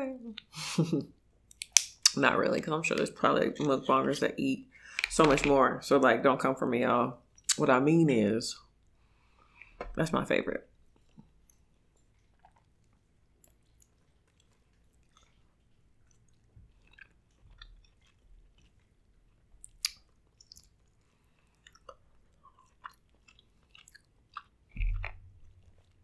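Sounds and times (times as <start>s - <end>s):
wet mouth clicks and smacks: 1.5s - 2.2s, 19.6s - 20.9s, 21.6s - 26.0s
close-up chewing: 10.7s - 26.0s.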